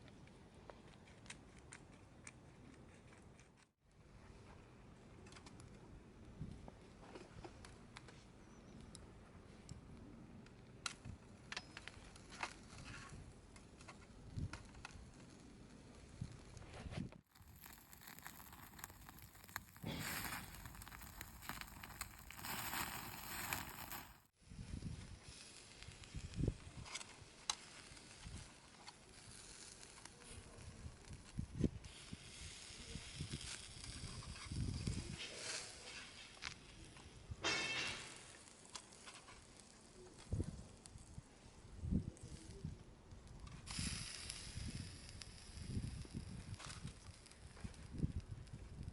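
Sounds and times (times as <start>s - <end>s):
campfire crackling: 9.7s - 24.4s, 37.6s - 41.6s, 42.2s - 48.9s.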